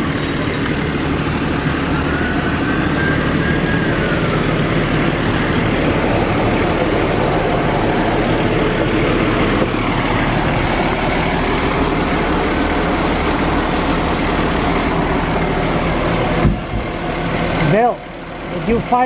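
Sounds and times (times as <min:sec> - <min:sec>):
street noise: 0:00.0 - 0:19.0
truck engine idling: 0:00.0 - 0:19.0.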